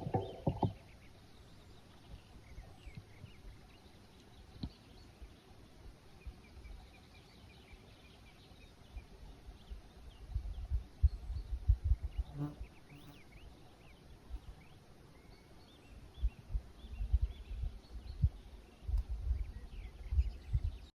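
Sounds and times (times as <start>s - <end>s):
distant birds chirping: 0.0s - 20.9s
wind buffeting microphone: 10.1s - 12.3s, 16.2s - 20.9s.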